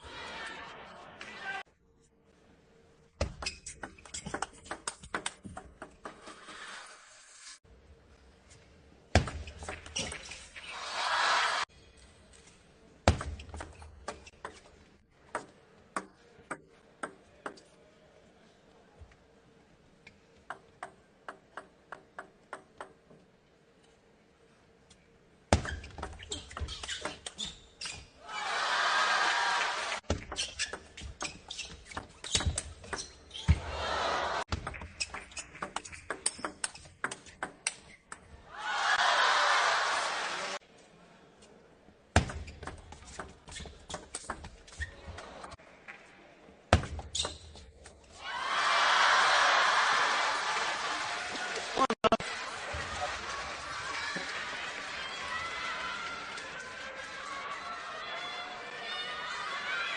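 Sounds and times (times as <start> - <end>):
crowd cheering and applause: 10.7 - 11.7, 28.2 - 30.0, 33.6 - 34.5, 38.5 - 40.6, 48.2 - 59.9.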